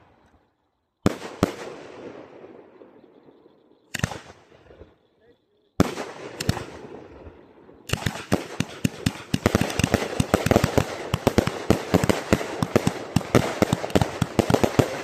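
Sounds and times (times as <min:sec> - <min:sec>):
firework cracks and pops: 0:03.9 - 0:04.7, 0:05.8 - 0:07.2, 0:07.8 - 0:15.0.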